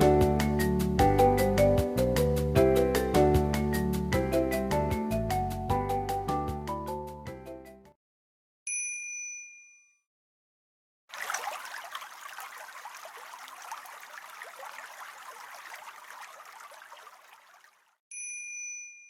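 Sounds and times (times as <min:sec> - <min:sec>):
chime: 0:08.7 - 0:10.0, 0:18.1 - 0:19.0
toilet flush water rushing: 0:11.1 - 0:17.8.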